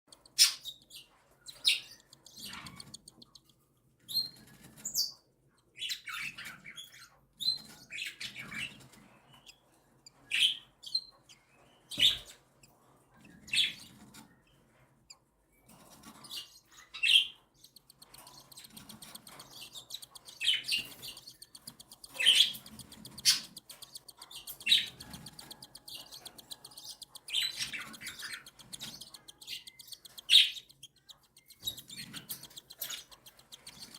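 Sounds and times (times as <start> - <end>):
chicks begging calls: 17.7 - 33.9.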